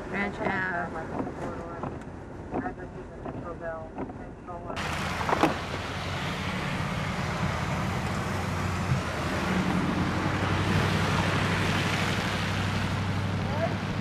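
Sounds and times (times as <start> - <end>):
low engine hum: 0.0 - 14.0
hiss of passing vehicles: 4.8 - 14.0.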